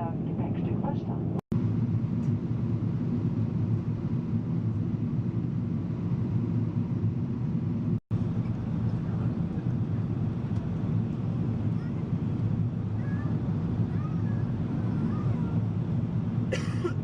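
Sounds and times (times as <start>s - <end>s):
airliner cabin engine drone: 0.0s - 17.0s.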